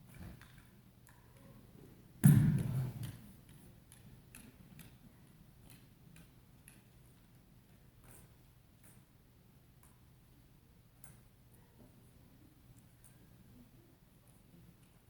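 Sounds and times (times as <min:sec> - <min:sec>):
loud thump: 0:02.2 - 0:02.9.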